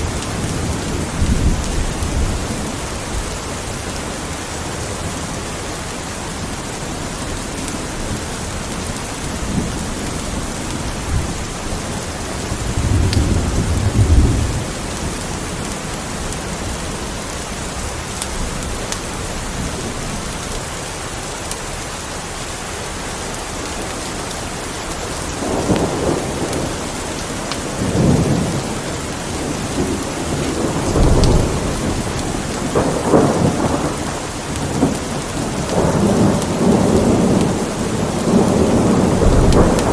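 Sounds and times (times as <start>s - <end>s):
steady rain: 0.0s - 39.9s
rolling thunder: 8.0s - 20.3s, 25.2s - 39.9s.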